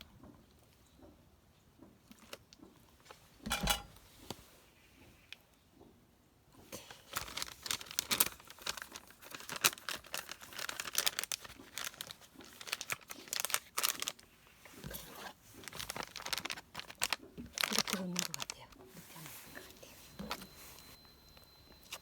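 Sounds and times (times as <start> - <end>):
food packaging crinkling and tearing: 6.8 - 20.9.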